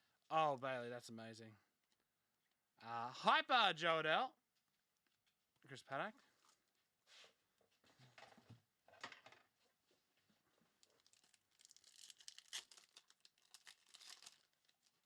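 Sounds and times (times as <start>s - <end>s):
wrapper rustling and crinkling: 10.8s - 15.0s.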